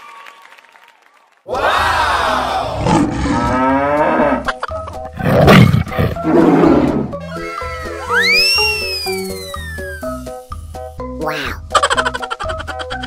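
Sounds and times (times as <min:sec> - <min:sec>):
children's background music: 0:01.6 - 0:13.0
tiger roar: 0:02.5 - 0:04.4, 0:05.1 - 0:07.1.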